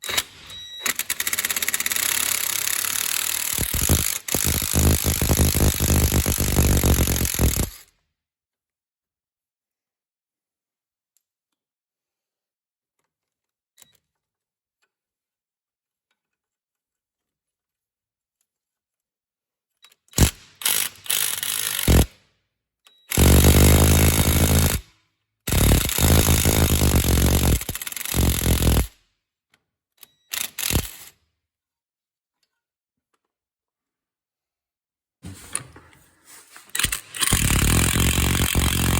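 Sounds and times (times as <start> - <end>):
impact wrench hammering on bolts: 1.2 - 7.8, 20.2 - 22.2, 23.1 - 24.8, 25.5 - 28.9, 30.4 - 31.1, 36.8 - 38.9.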